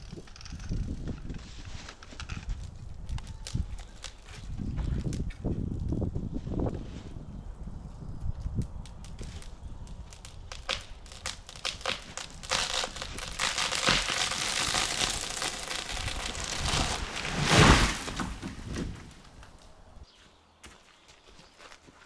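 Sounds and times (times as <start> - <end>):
tree crashing to ground: 0.0 - 6.0, 8.5 - 20.0
branches breaking: 0.0 - 6.7, 8.2 - 20.0
wood cracking: 0.0 - 6.7, 7.5 - 20.0.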